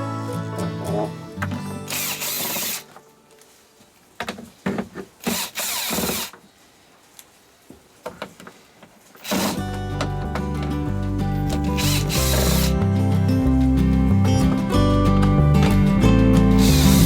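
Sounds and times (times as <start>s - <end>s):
electric screwdriver running: 1.9s - 2.9s, 5.2s - 6.4s, 9.2s - 9.8s, 11.6s - 12.8s, 16.5s - 17.0s.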